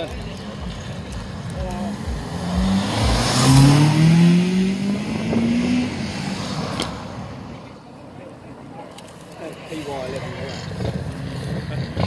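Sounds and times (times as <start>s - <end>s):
car accelerating past: 1.8s - 7.8s.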